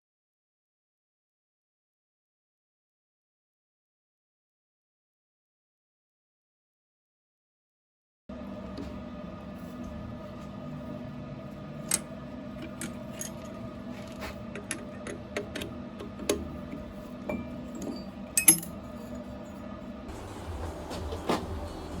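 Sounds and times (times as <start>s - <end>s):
steady hum: 8.3s - 22.0s
metal parts clinking: 12.7s - 14.2s, 17.8s - 18.8s.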